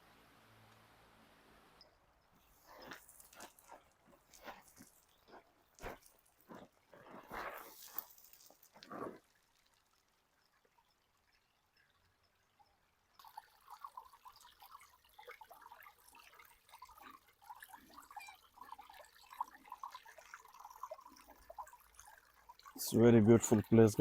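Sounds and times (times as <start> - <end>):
stream trickling over rocks: 2.3 - 24.0.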